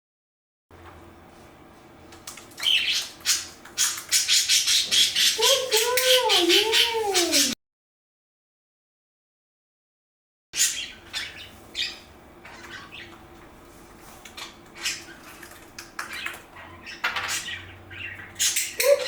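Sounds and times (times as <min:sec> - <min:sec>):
bird chirping: 0:02.5 - 0:07.6, 0:16.0 - 0:18.8.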